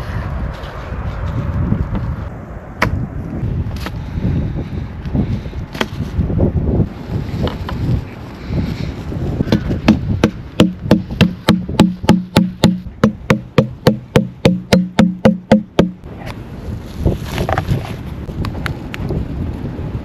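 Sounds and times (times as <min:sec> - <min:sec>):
chopping on a wooden board: 0:09.5 - 0:16.0.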